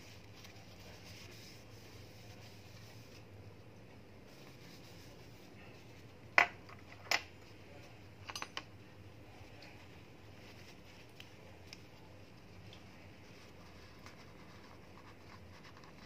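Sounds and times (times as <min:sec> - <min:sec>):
faint background noise: 0:00.0 - 0:16.0.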